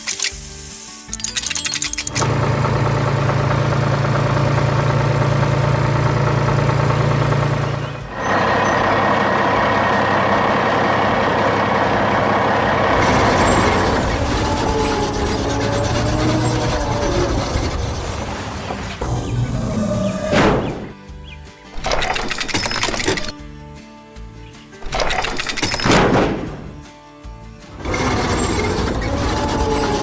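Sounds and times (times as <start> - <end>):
higher-pitched engine: 1.2 - 20.9, 27.7 - 30.0
heavy vehicle engine running: 1.2 - 21.1, 27.6 - 30.0.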